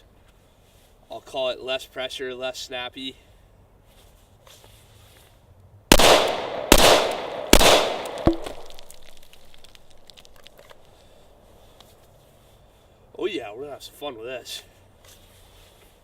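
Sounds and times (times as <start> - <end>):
pistol shots: 5.9 - 9.0.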